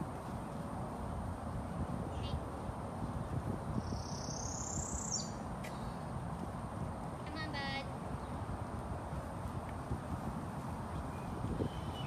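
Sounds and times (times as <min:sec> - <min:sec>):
bird trilling and whistling: 0:11.2 - 0:12.0.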